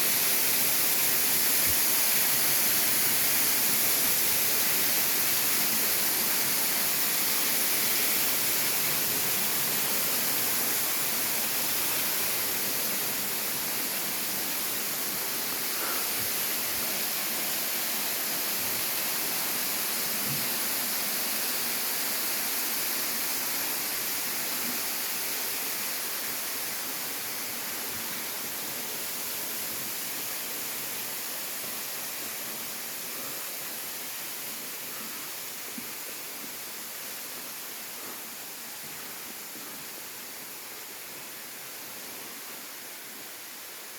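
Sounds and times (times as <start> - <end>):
waterfall rushing: 0.0 - 34.2.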